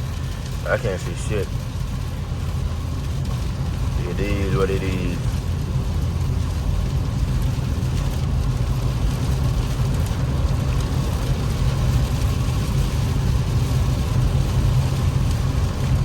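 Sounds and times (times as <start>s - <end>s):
rain drumming on car: 0.0s - 16.0s
tyres and engine rumble: 0.0s - 16.0s.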